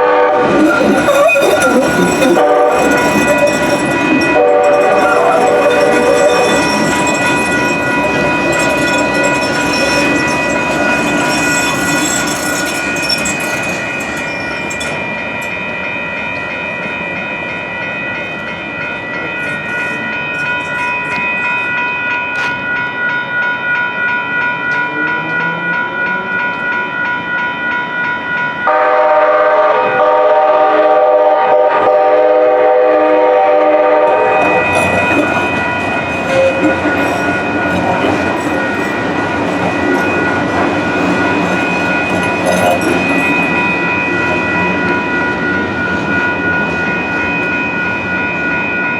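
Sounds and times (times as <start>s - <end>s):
train horn: 0.0s - 6.9s, 28.6s - 35.3s
crossing warning bell ringing: 0.0s - 48.9s.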